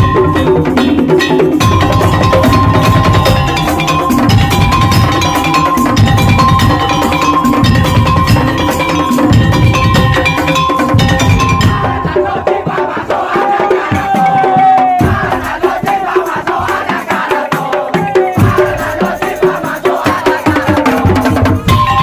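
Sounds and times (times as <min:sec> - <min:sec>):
held melody line: 0:00.0 - 0:12.8
fast slit drum percussion: 0:00.0 - 0:22.0.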